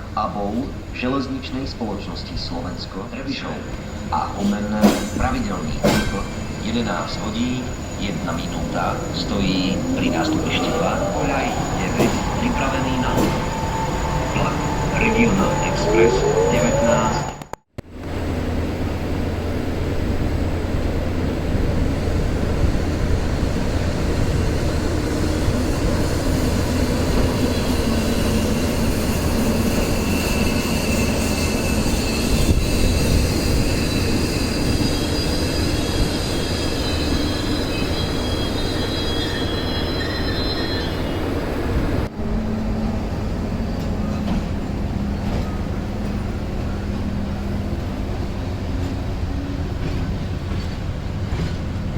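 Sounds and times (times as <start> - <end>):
train wheels rumbling on rails: 0.0 - 17.4, 18.0 - 51.9
high wheel squeal: 3.6 - 17.5, 24.2 - 48.6.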